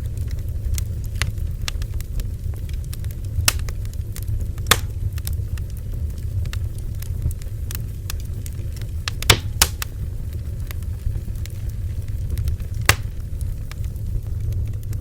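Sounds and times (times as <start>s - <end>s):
low rumble of flames: 0.0s - 15.0s
wood crackling and popping: 0.0s - 15.0s.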